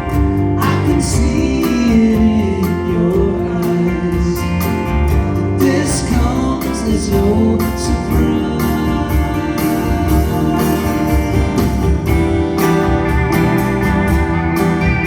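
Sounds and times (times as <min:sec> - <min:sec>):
lead vocal: 0:00.0 - 0:13.7
bass guitar: 0:00.0 - 0:15.0
electric guitars: 0:00.0 - 0:15.0
steady drum beat: 0:00.0 - 0:15.0.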